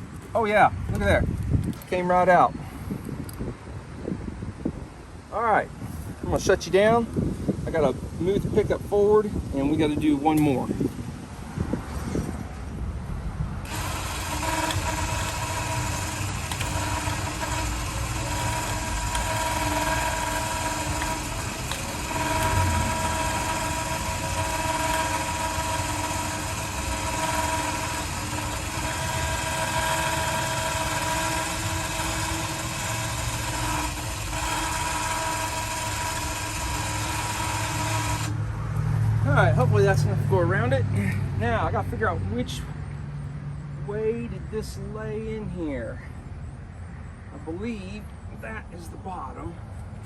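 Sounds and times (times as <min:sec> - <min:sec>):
pickup truck engine running: 0:13.7 - 0:35.4.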